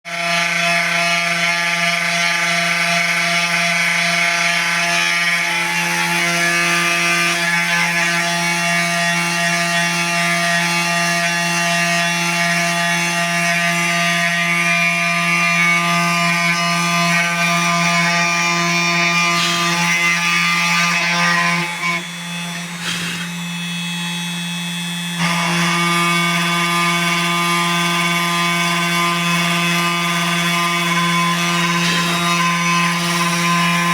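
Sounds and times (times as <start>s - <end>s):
engraving machine whine: 15.8s - 33.9s.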